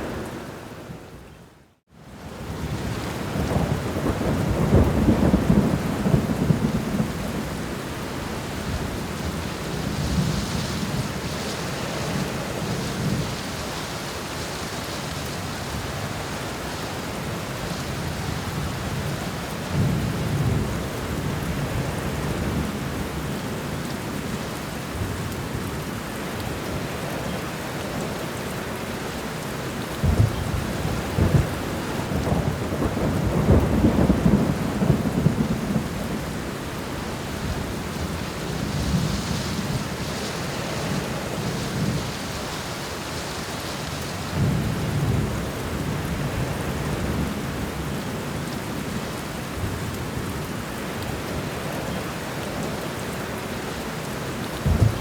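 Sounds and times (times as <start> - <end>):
steady rain: 0.0 - 55.0
thunder rumbling: 30.0 - 36.4, 54.6 - 55.0
sharp thunder clap: 54.6 - 55.0.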